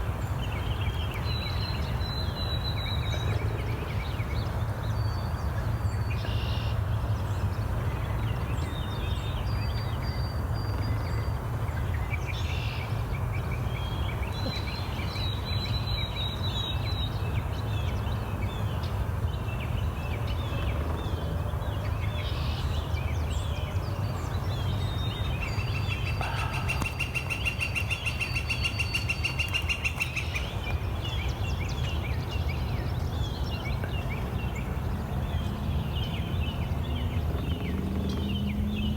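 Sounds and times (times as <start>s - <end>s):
songbirds chirping: 12.1s - 38.9s.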